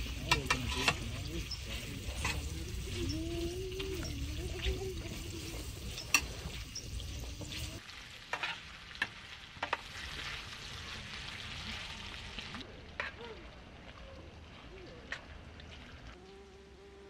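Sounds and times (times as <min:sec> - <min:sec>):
tongs clacking against pan: 0:00.0 - 0:07.7
meat sizzling in a pan: 0:00.0 - 0:12.6.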